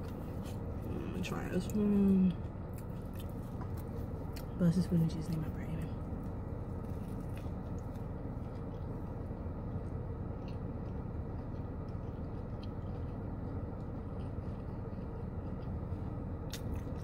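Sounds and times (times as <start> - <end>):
low car cabin hum: 0.0 - 17.0
person chewing: 2.4 - 4.6, 6.2 - 17.0.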